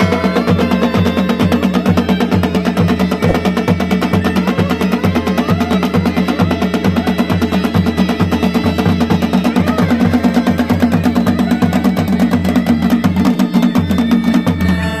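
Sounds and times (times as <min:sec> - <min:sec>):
bagpipe drone and melody: 0:00.0 - 0:15.0
drums beating fast rhythm: 0:03.2 - 0:04.1.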